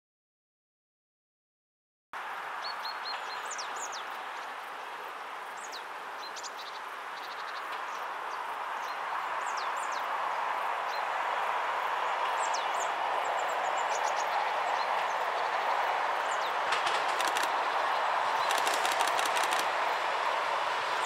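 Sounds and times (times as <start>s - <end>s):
songbirds chirping: 2.2s - 21.0s
distant train rushing: 9.1s - 21.0s.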